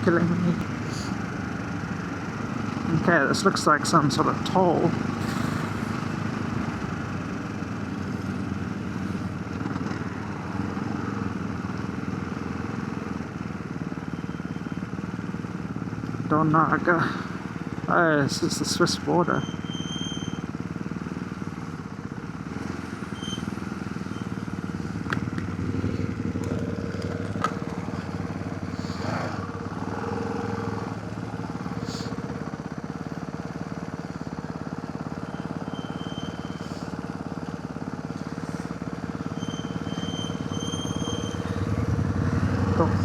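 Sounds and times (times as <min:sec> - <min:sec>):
motorcycle engine idling: 0:00.0 - 0:43.0.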